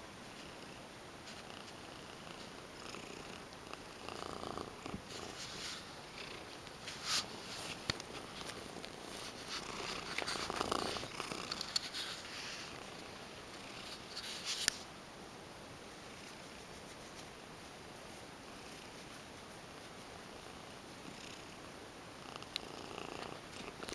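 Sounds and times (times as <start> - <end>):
cat purring: 0.2 - 14.5, 18.4 - 23.9
brush scratching through fur: 5.1 - 14.7.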